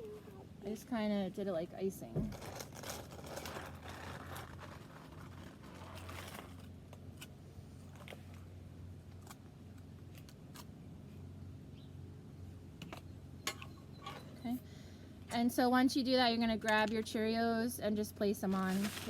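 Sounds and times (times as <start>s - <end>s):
low steady hum: 0.0s - 19.0s
cone clicks and crunches: 2.3s - 7.3s.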